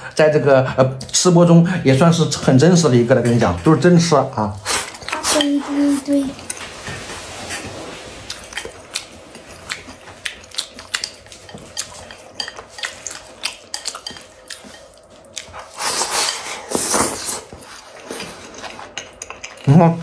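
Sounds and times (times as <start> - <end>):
utensil scraping bowl: 4.4 - 8.2
chewing: 4.4 - 19.8.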